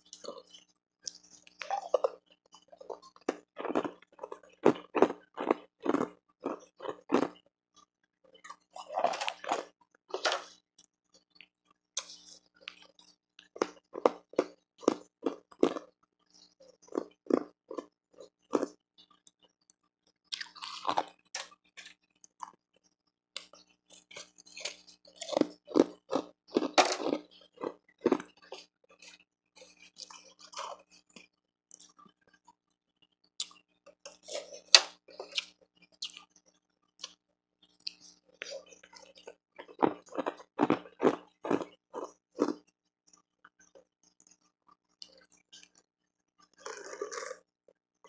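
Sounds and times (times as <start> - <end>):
ice being crunched and chewed: 1.1 - 7.4, 8.4 - 10.5, 12.0 - 15.9, 16.8 - 18.8, 23.4 - 32.0, 37.8 - 42.7, 46.5 - 47.4.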